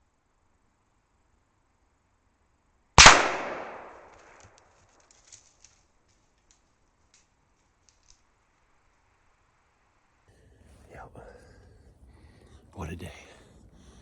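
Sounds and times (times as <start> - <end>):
gunshot crack: 3.0 - 4.4.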